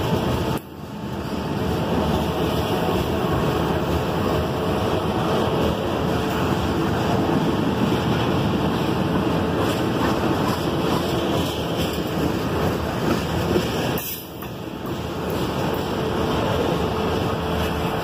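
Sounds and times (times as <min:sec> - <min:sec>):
freight cars rolling on rails: 0:00.0 - 0:18.0.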